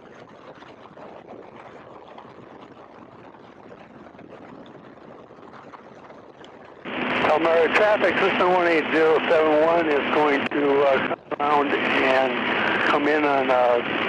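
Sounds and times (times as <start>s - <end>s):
biplane in flight rushing: 0.0s - 14.0s.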